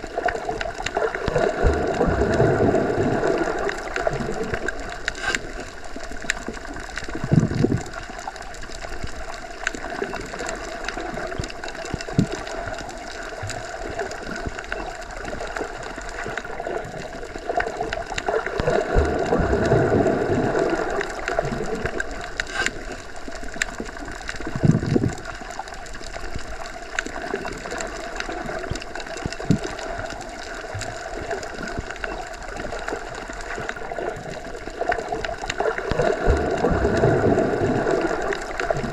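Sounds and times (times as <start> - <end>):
low whooshes of water bubbles: 0.0 - 38.9
small underwater clicks: 0.0 - 38.9
underwater watery wash: 0.0 - 38.9.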